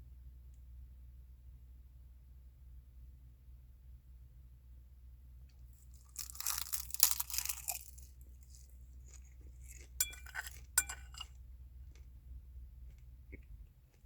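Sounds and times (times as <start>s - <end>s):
food crunching being chewed: 5.9s - 12.1s, 12.8s - 14.0s
utensils clinking against dish: 10.0s - 11.3s.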